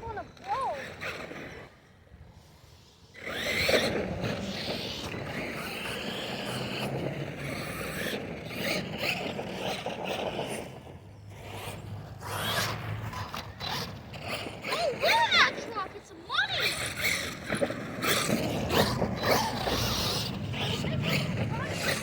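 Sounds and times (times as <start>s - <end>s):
electric motor whining: 3.2s - 22.0s
tyres grinding over ground: 5.2s - 22.0s.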